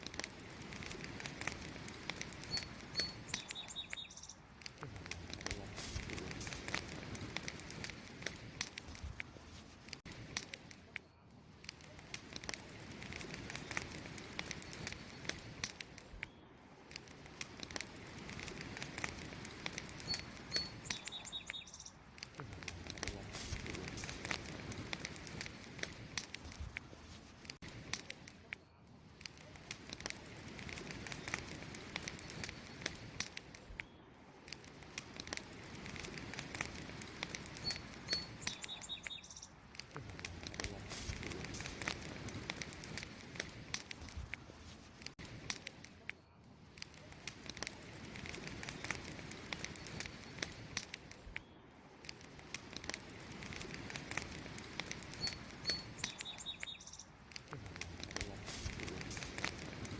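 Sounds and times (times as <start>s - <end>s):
wood fire crackling and popping: 0.0s - 59.9s
bird chirps: 2.4s - 4.5s, 20.0s - 22.0s, 37.6s - 39.6s, 55.2s - 57.2s.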